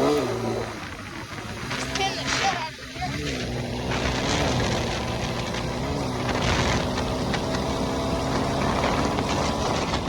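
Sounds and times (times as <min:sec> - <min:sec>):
dirt bike engine: 0:00.0 - 0:10.0.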